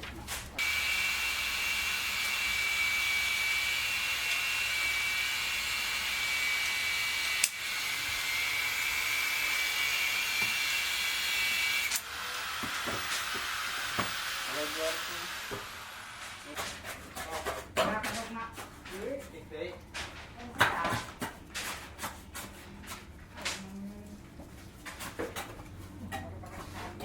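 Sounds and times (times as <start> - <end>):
small electric motor whining: 0.6 - 16.4.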